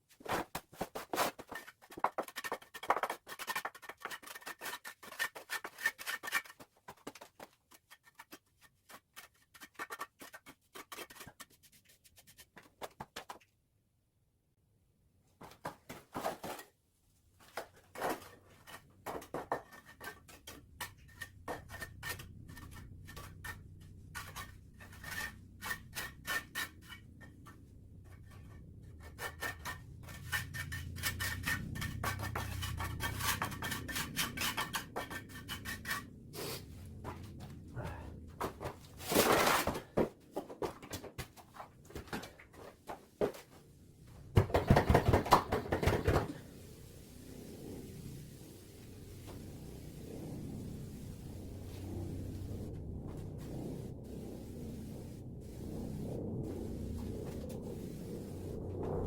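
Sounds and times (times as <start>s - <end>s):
hand tool scraping hard surface: 0.2s - 11.6s, 17.9s - 37.2s.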